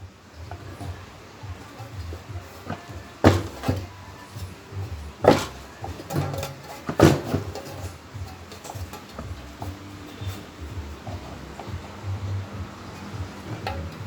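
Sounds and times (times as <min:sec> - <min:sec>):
plastic fan parts knocking: 0:00.0 - 0:14.0.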